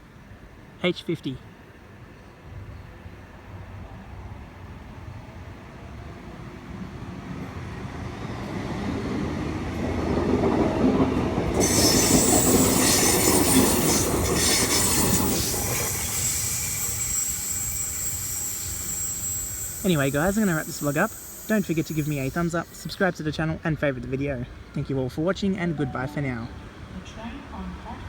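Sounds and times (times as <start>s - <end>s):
electric train rumble: 1.9s - 23.7s
high-pitched train squeal: 11.5s - 23.1s.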